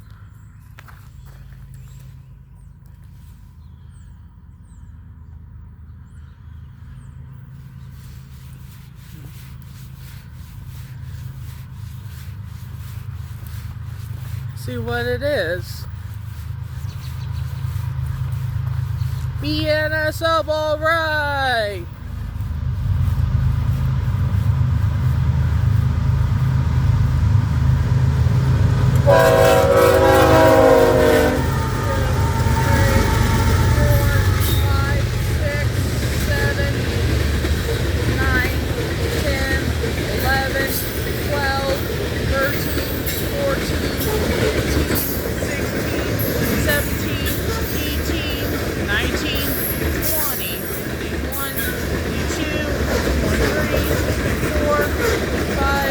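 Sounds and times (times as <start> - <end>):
low engine rumble: 0.0 - 55.9
train air horn chord: 28.9 - 35.4.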